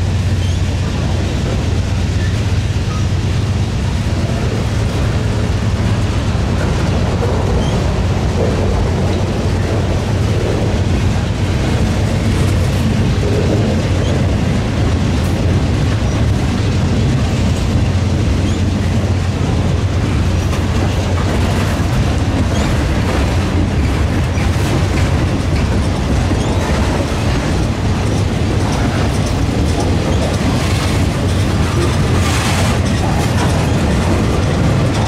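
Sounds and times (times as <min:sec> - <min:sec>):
diesel passenger train rumbling: 0:00.0 - 0:35.0.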